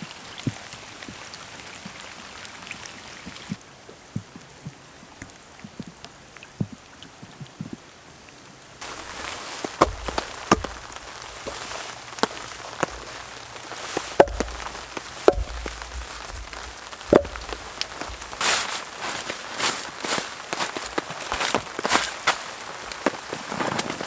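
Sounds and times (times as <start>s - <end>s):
steady rain falling: 0.0s - 6.4s, 7.8s - 24.0s
sharp knocks and snaps: 8.8s - 19.9s.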